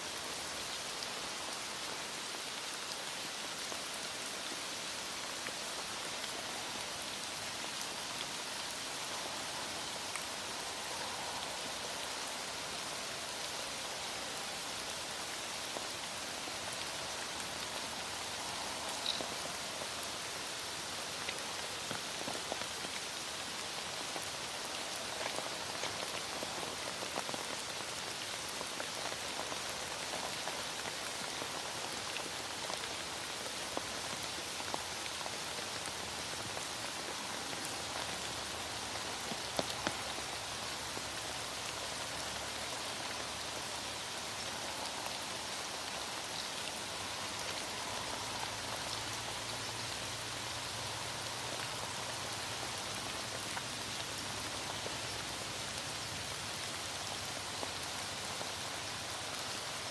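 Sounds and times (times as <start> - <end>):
heavy rain hissing: 0.0 - 59.9.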